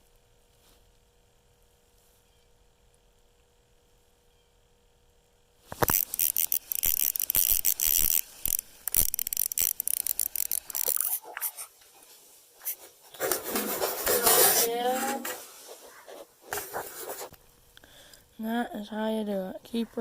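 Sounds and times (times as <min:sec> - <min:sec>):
clicks and knocks of fishing rod: 0:05.7 - 0:11.4
scratchy rubbing: 0:12.6 - 0:17.4.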